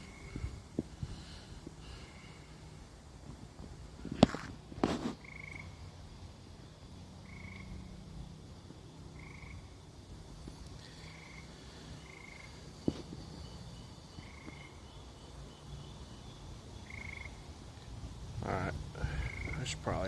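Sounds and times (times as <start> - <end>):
frogs trilling: 0.0 - 3.1, 3.9 - 20.0
quick frog chirps: 4.1 - 6.0, 7.2 - 8.1, 9.1 - 9.8, 10.6 - 15.9, 16.8 - 17.9, 18.5 - 20.0.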